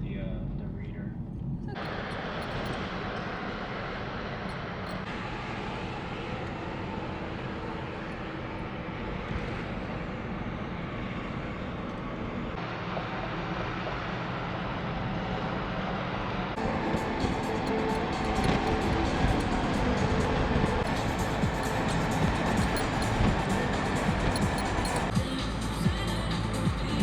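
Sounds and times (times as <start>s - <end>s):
vehicle road and engine noise: 0.0s - 27.0s
music: 16.6s - 27.0s.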